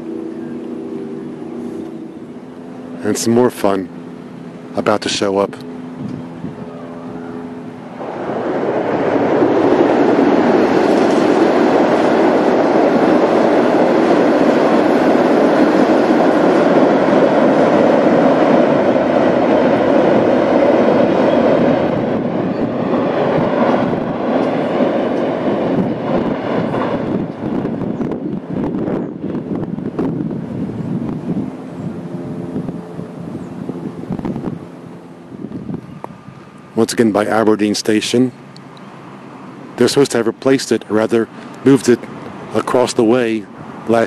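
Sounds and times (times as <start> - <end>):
train wheels rushing on rail: 7.5 - 44.0.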